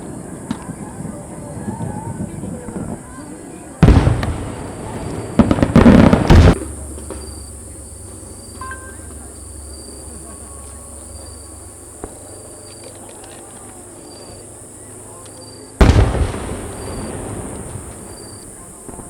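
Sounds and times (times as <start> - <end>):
fireworks bangs: 0.0 - 10.1, 15.8 - 19.0.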